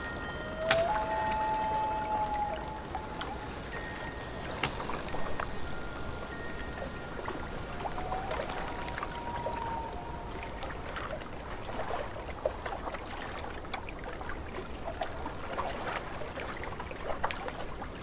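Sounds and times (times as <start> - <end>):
low wind rumble: 0.0 - 18.0
waves lapping against shore: 0.0 - 18.0
loon wailing: 0.1 - 4.2, 7.6 - 10.8.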